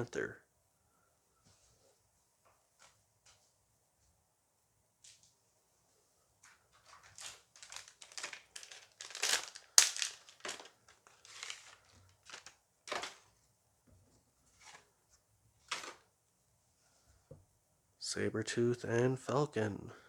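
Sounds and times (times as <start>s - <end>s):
foil pack crinkling and tearing: 6.8s - 13.3s.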